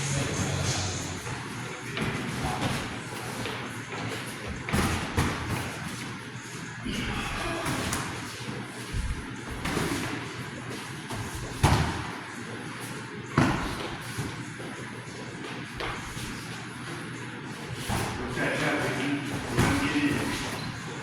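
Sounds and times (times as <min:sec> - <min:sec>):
heavy thuds and slams echoing: 0:04.5 - 0:05.8, 0:11.1 - 0:12.2, 0:19.4 - 0:20.6.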